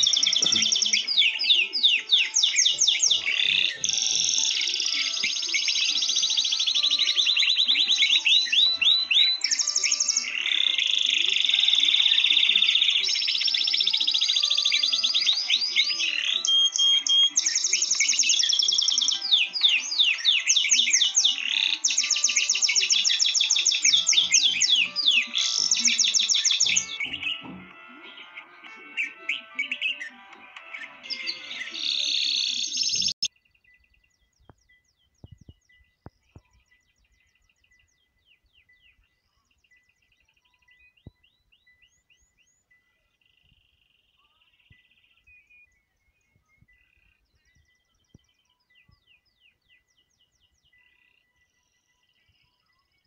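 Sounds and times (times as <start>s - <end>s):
background music: 0.0s - 33.2s
birds chirping: 0.0s - 53.0s.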